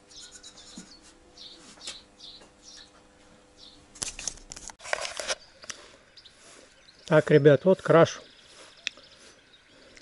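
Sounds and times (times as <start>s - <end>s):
small bird chirping: 0.0s - 3.0s, 3.6s - 3.9s, 5.4s - 10.0s
faint steady hum: 0.0s - 10.0s.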